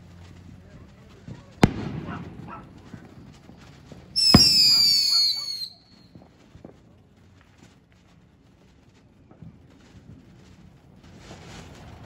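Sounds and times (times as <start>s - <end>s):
fireworks banging: 0.0s - 12.0s
fireworks crackling: 0.0s - 12.0s
high firework whistle: 4.2s - 6.2s.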